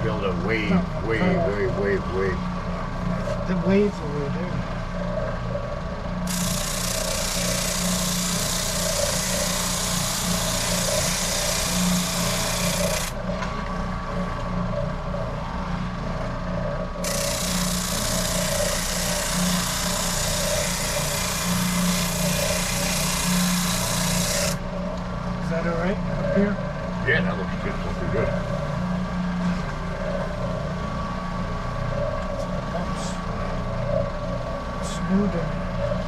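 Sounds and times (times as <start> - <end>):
power sander motor: 6.2 - 13.2, 17.0 - 24.6
wood rasping on abrasive: 6.3 - 13.2, 17.0 - 24.6.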